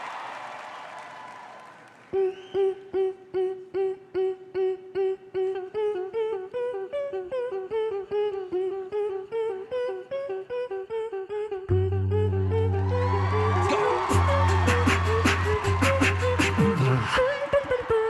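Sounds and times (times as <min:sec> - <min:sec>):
vocal imitation of synth riff: 0:02.2 - 0:18.0
deep steady bass tone: 0:11.7 - 0:16.8.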